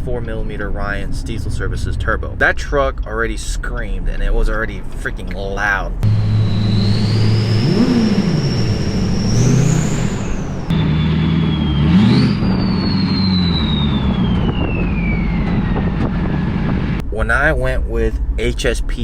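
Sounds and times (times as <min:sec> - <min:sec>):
diesel engine revving: 0:05.9 - 0:17.2
turbo whistle: 0:06.0 - 0:16.0.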